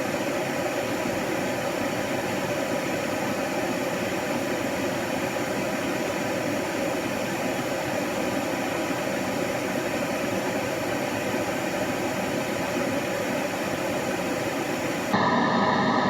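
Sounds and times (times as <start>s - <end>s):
white noise: 11.8s - 16.0s.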